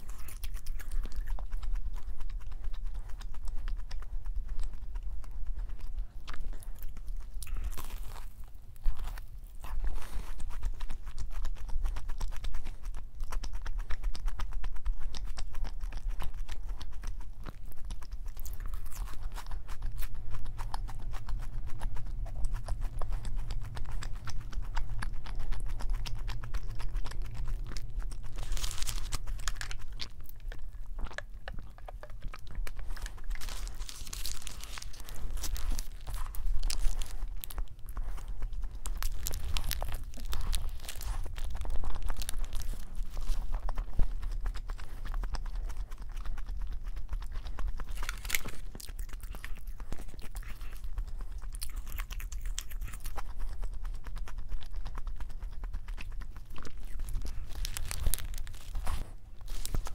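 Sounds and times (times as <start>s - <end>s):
crunching and chewing: 0.0s - 59.9s
paper wrapper crinkling: 28.2s - 30.0s, 32.8s - 43.8s, 56.7s - 59.9s.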